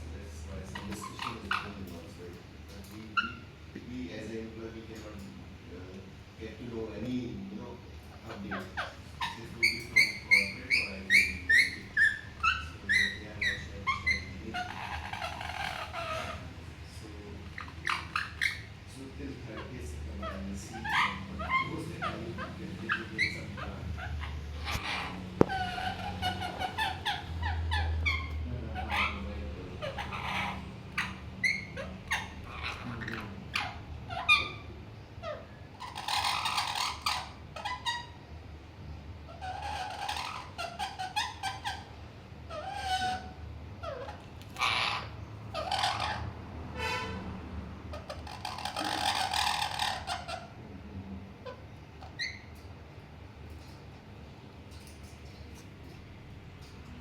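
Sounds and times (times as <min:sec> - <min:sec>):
parrot chirping: 0:00.4 - 0:02.1, 0:03.0 - 0:03.7, 0:08.2 - 0:16.6, 0:17.4 - 0:18.8, 0:19.6 - 0:50.6, 0:51.4 - 0:57.0
harsh noisy parrot call: 0:08.2 - 0:16.8, 0:19.6 - 0:38.5, 0:39.2 - 0:52.6.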